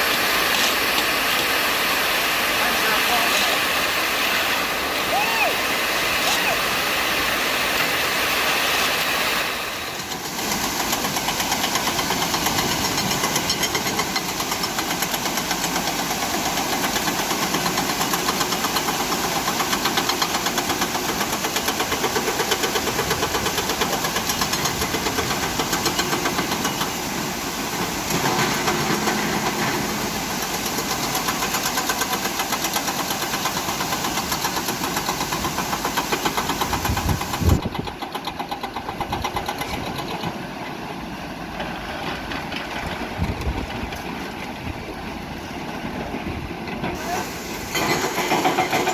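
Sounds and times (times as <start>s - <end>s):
diesel truck engine knocking: 30.6s - 40.4s.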